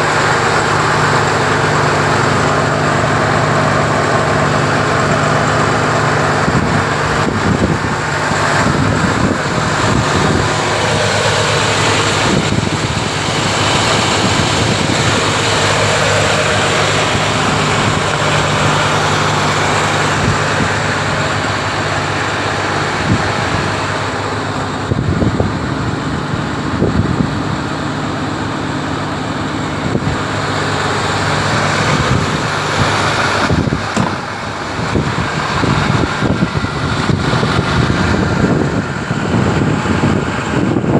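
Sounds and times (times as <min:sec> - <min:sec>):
truck diesel engine idling: 0:00.0 - 0:40.9
short knocks: 0:33.9 - 0:34.4.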